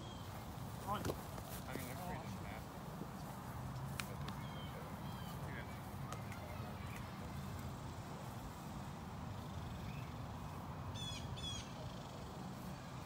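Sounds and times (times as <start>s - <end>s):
bird calling: 11.0s - 11.9s.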